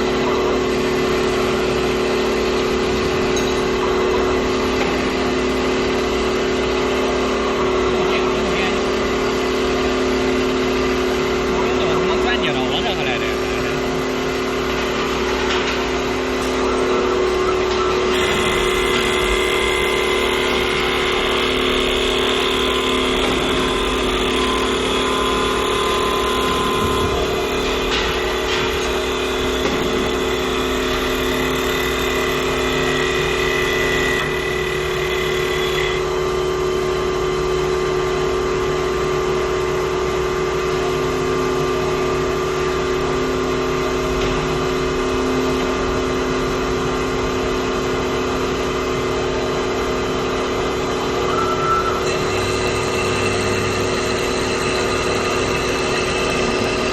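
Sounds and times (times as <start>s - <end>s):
high machine whine: 0.0s - 56.9s
machine hum: 0.1s - 37.5s, 43.9s - 56.9s.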